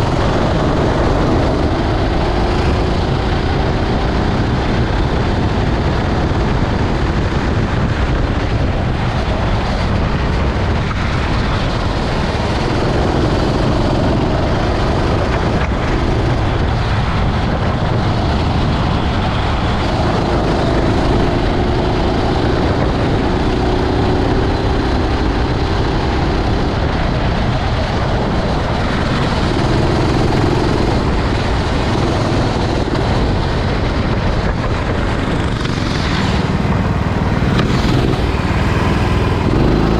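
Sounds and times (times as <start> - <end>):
heavy rushing noise: 0.0 - 39.9
kart engine running: 0.0 - 39.9.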